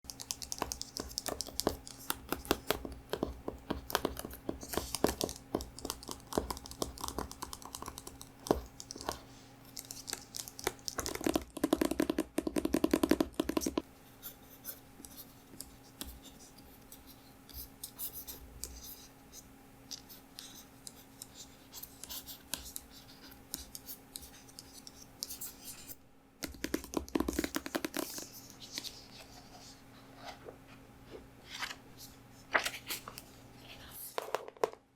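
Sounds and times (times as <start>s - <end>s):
faint steady hum: 0.0s - 34.9s
tapping on a book: 0.3s - 9.2s, 10.6s - 13.8s, 26.4s - 28.2s.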